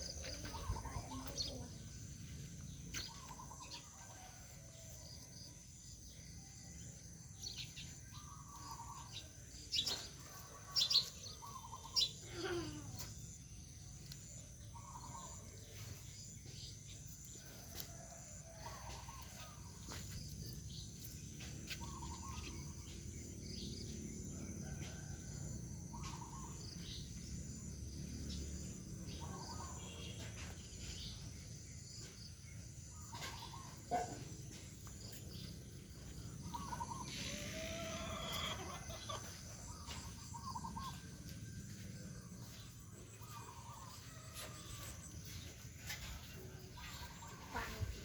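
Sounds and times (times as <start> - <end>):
chickens clucking: 36.6 - 41.0.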